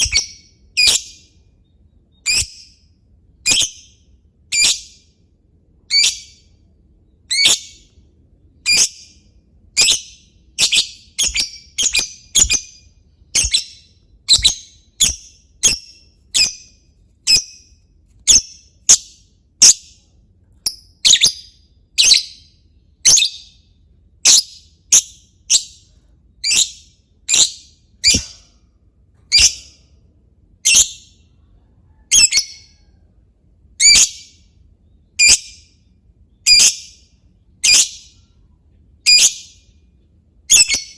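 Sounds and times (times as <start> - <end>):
lovebird chirping: 0.0 - 2.8, 3.4 - 5.0, 5.9 - 6.5, 7.3 - 8.0, 8.6 - 20.0, 20.6 - 23.6, 24.2 - 28.4, 29.3 - 29.8, 30.6 - 31.3, 32.1 - 32.9, 33.8 - 35.7, 36.3 - 37.0, 37.6 - 38.4, 39.0 - 39.7, 40.5 - 40.9.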